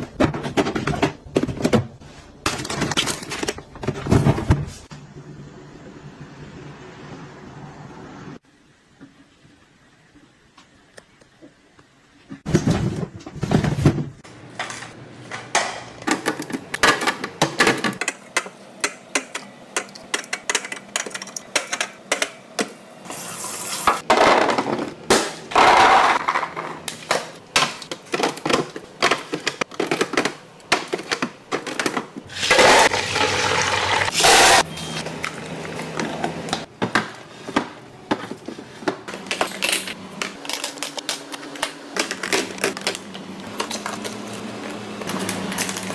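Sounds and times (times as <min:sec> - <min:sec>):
dishes clicking and clattering: 0:15.6 - 0:22.8.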